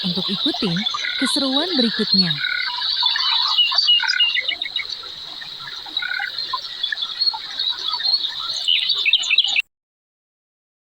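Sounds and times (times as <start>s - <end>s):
frog chirps: 0.0s - 9.6s
frogs trilling: 0.0s - 9.6s.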